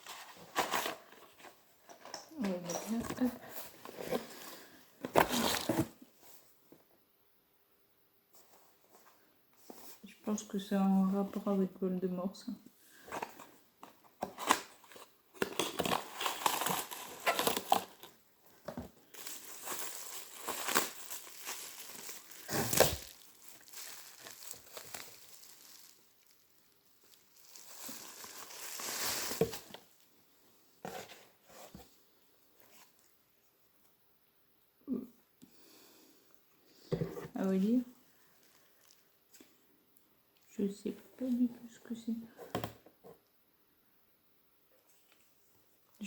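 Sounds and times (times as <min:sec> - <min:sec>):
packaging crinkling and tearing: 0:14.2 - 0:18.2, 0:19.0 - 0:30.0.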